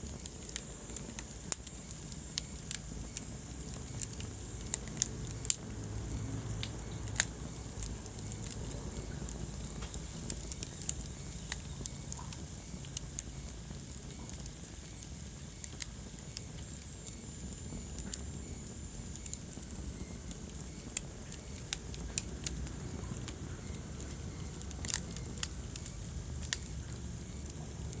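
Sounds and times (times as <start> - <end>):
fireplace fire crackling: 0.0 - 28.0.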